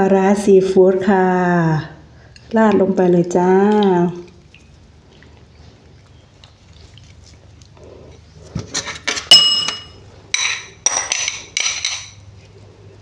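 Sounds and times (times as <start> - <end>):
spoon clinking against dishes: 9.3 - 12.2.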